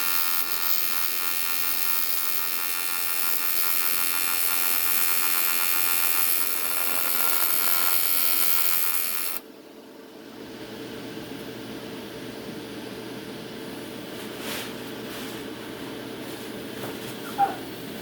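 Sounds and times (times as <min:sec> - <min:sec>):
welding arc buzzing and crackling: 0:00.0 - 0:09.4.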